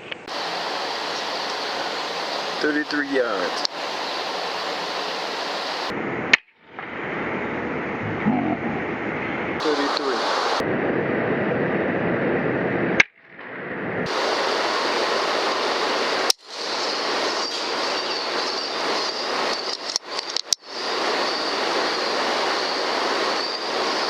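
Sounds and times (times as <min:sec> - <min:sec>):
faint high whine: 0:00.0 - 0:10.7, 0:14.1 - 0:24.0
steady rushing background noise: 0:00.0 - 0:24.0.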